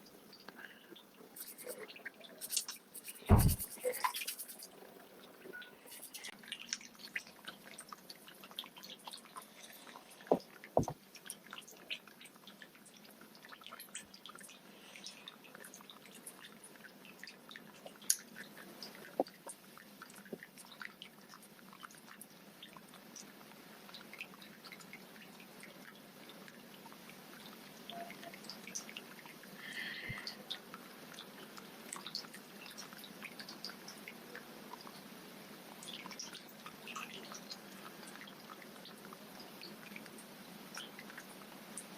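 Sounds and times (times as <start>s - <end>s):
fish smacking water surface: 3.2s - 4.6s.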